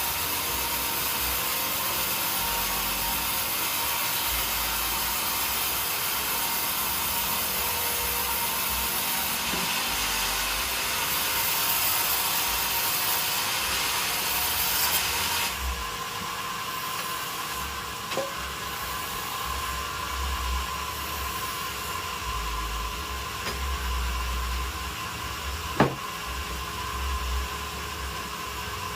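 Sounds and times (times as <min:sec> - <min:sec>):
saw blade cutting wood: 0:00.0 - 0:15.6
machine hum: 0:00.0 - 0:28.9
sharp knock: 0:25.8 - 0:26.0.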